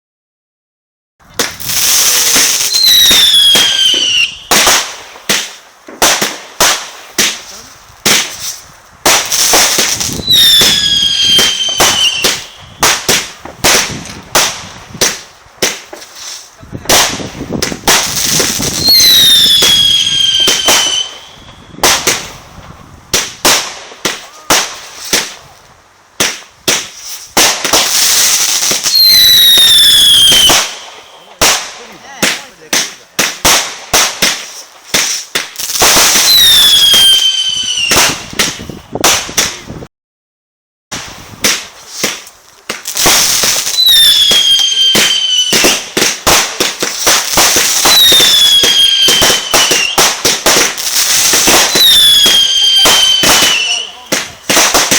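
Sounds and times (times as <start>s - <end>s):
firework bangs and crackles: 1.2s - 39.9s, 40.9s - 54.9s
firework hissing burst: 1.3s - 25.6s, 26.2s - 39.8s, 41.0s - 54.9s
falling whistles: 10.2s - 12.6s, 36.2s - 38.0s, 43.8s - 45.8s, 51.6s - 53.9s.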